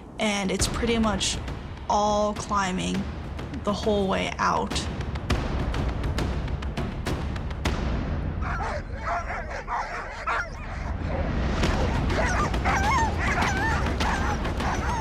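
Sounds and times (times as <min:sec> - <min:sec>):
sled dogs yipping and whining: 0:08.4 - 0:15.0.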